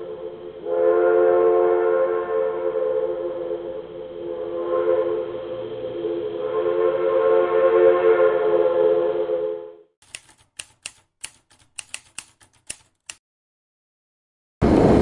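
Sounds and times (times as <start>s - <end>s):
typewriter key strikes: 10.0s - 13.2s.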